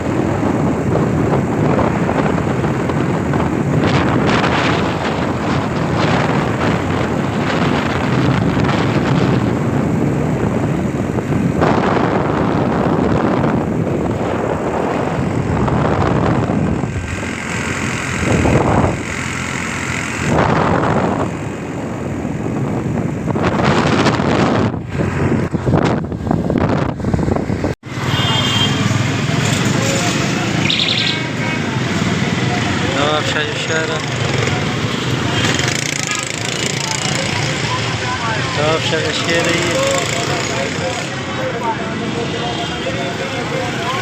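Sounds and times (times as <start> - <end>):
wind buffeting microphone: 0.0 - 28.0
vehicle road and engine noise: 0.0 - 44.0.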